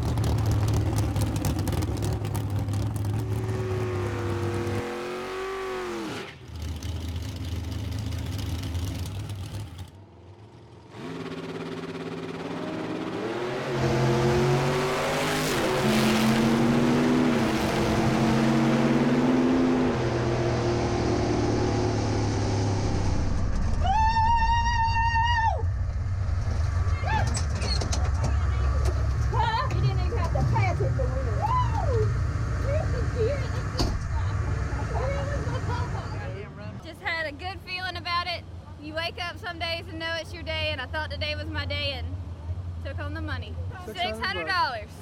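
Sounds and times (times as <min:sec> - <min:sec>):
drag-race car engines revving: 0:00.0 - 0:23.4, 0:26.5 - 0:37.0.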